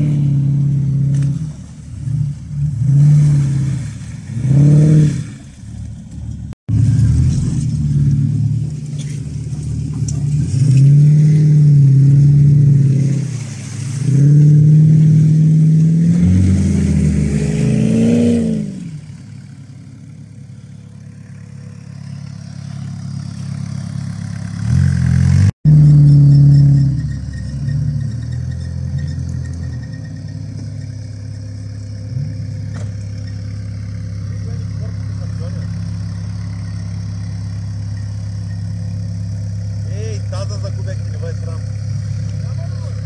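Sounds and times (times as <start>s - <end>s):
car engine revving hard: 0.0s - 5.5s, 14.0s - 19.1s.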